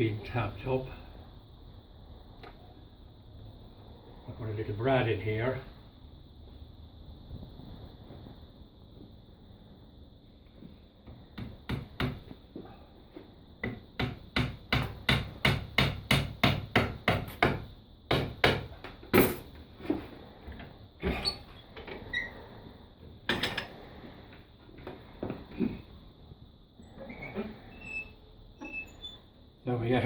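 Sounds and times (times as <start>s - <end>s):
hammer tapping on wood: 11.4s - 12.3s, 13.6s - 19.0s.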